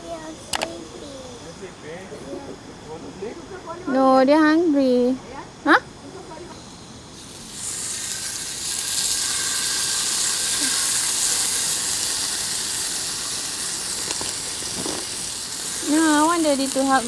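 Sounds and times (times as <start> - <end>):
food sizzling in a pan: 6.1 - 17.0.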